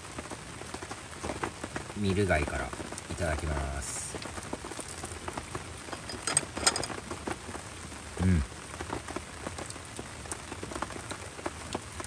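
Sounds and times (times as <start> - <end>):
rain pattering: 0.0 - 12.0
person murmuring: 8.2 - 8.5.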